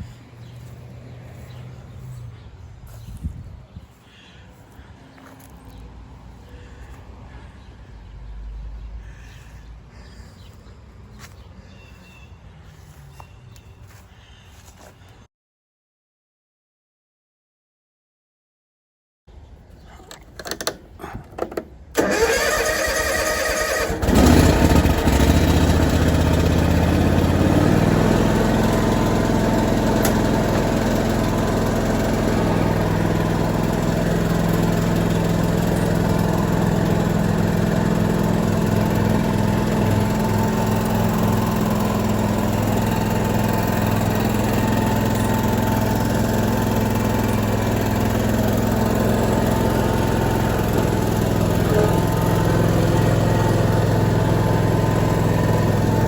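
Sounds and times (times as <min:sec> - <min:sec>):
lawn mower engine running: 0:00.0 - 0:02.3, 0:20.4 - 0:56.0.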